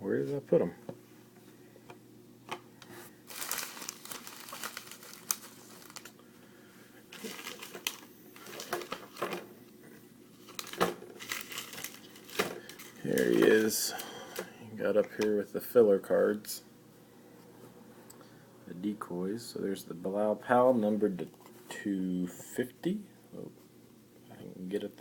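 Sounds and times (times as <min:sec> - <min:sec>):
trading cards rustling: 0:03.3 - 0:06.2, 0:07.1 - 0:09.3, 0:10.4 - 0:13.9.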